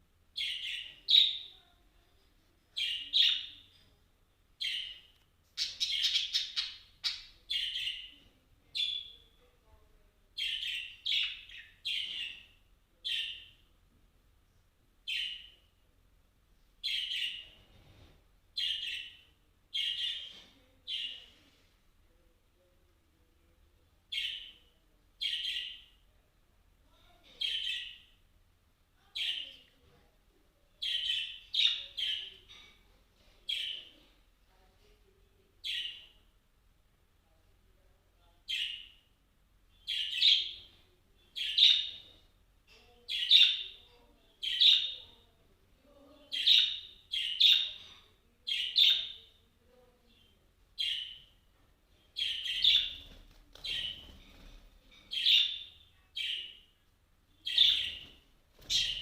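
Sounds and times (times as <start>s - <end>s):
bird chirping: 0.4s - 1.7s, 2.8s - 3.9s, 4.6s - 9.5s, 10.4s - 13.6s, 15.0s - 15.7s, 16.8s - 17.6s, 18.6s - 21.2s, 39.7s - 42.2s, 45.9s - 49.4s, 50.0s - 59.0s.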